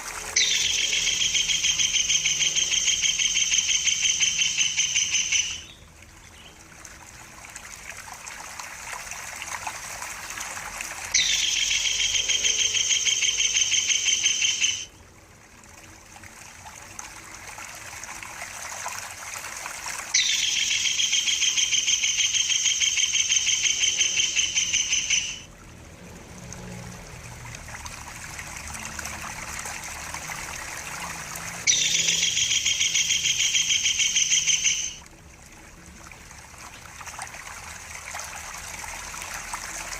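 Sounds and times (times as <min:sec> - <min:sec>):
kingfisher calling rapid high notes: 0:00.0 - 0:05.8, 0:11.1 - 0:15.0, 0:20.0 - 0:25.5, 0:31.5 - 0:35.0
trickling water: 0:00.0 - 0:39.9.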